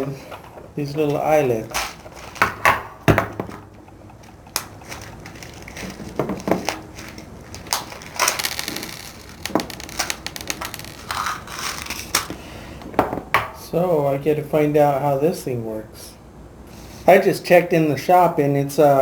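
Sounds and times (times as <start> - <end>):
metal eyelets clicking and rustling: 0.1 - 12.4.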